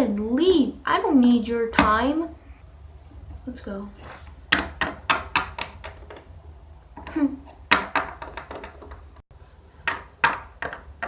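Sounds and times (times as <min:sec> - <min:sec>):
plastic toy figures tapping: 0:04.5 - 0:06.3, 0:07.0 - 0:09.1, 0:09.8 - 0:11.0.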